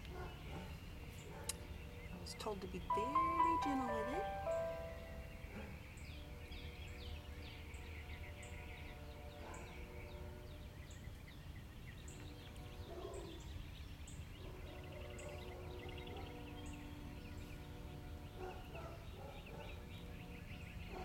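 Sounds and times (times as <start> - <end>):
birds chirping: 0.0 - 21.0
short high bird note: 3.0 - 5.3.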